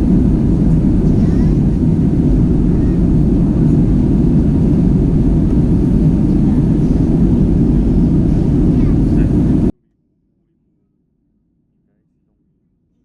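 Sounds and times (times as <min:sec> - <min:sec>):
airplane cabin engine rumble: 0:00.0 - 0:09.8.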